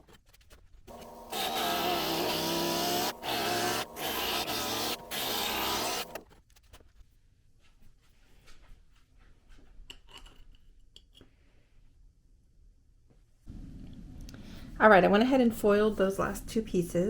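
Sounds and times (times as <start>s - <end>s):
glass grinder running: 0.9s - 6.2s.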